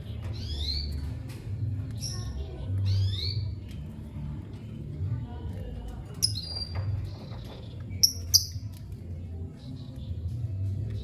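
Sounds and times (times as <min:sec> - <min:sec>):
lovebird chirping: 0:07.9 - 0:08.7.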